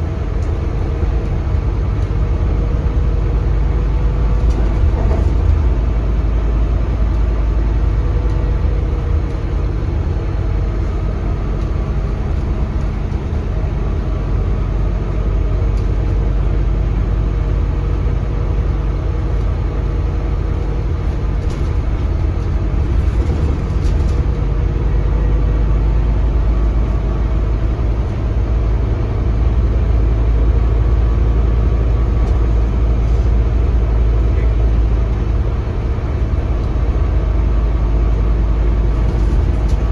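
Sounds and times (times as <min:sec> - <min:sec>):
bus diesel engine drone: 0:00.0 - 0:39.9
road and tyre rumble: 0:00.0 - 0:39.9.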